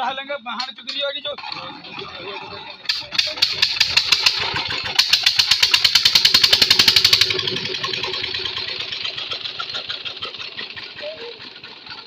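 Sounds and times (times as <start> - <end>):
pump engine knocking: 2.9 - 12.0.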